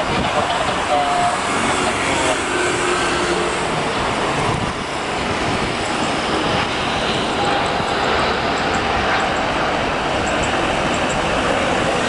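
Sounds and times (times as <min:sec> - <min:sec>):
jet engines at take-off thrust: 0:00.0 - 0:12.0.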